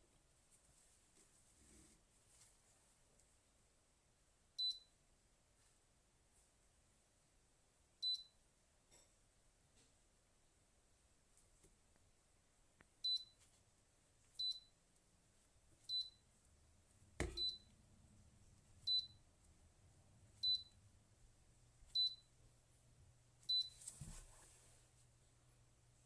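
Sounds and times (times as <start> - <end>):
short high beeps: 17.3 - 17.7.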